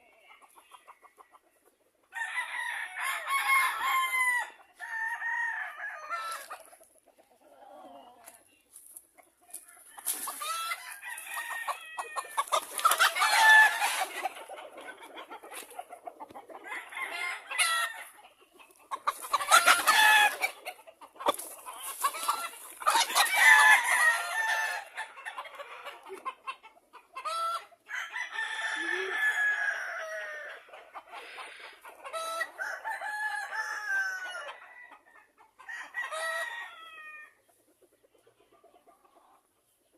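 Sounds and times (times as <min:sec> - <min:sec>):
chickens clucking: 0:00.0 - 0:02.1, 0:06.0 - 0:33.0, 0:34.4 - 0:39.9
roosters crowing: 0:02.1 - 0:06.7, 0:09.5 - 0:15.6, 0:16.3 - 0:18.2, 0:18.8 - 0:26.1, 0:27.2 - 0:37.4.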